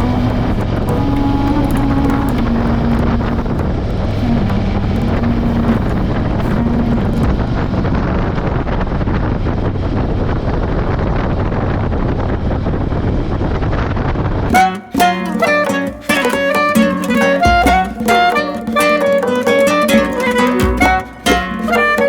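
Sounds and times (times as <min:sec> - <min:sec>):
motorcycle engine cruising: 0:00.0 - 0:13.3
wind noise on microphone: 0:00.0 - 0:14.6.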